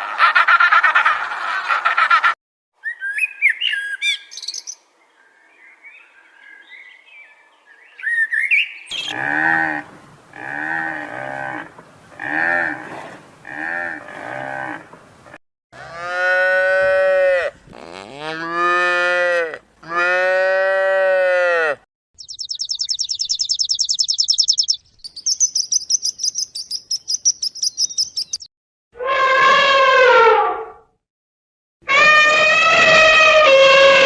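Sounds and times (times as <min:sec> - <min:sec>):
cattle mooing: 0:09.0 - 0:14.9, 0:15.8 - 0:21.8.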